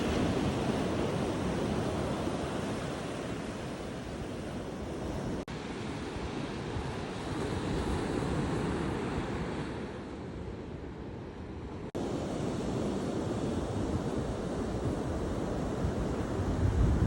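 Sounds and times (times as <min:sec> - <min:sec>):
ocean surf washing: 0:00.0 - 0:17.0
wind buffeting microphone: 0:11.9 - 0:17.0.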